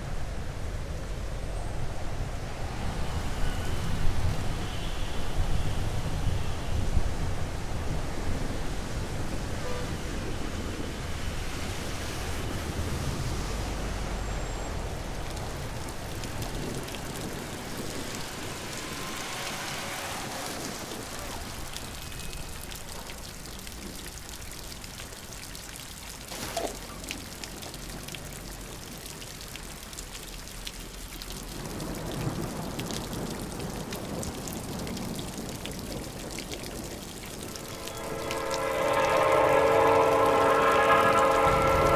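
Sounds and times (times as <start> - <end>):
rain on hard surface: 0.0 - 41.9.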